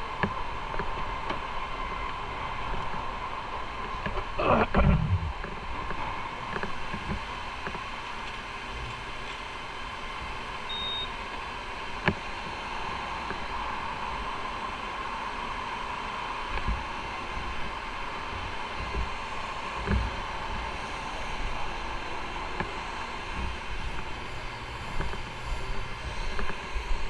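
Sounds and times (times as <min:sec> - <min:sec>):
wind noise: 0:04.2 - 0:05.7.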